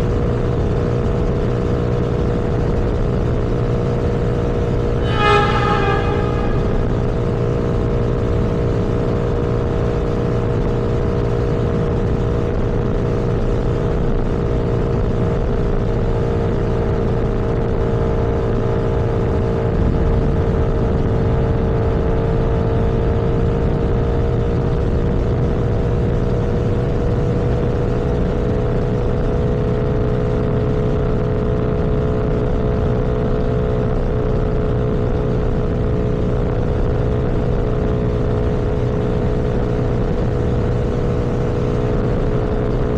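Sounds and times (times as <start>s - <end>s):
road rumble: 0.7s - 8.6s
vehicle engine humming: 4.8s - 8.4s.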